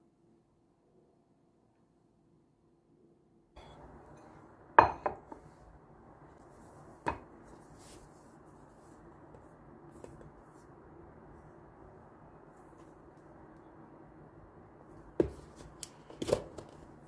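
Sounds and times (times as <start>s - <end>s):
kitchenware clinking: 3.6s - 5.4s.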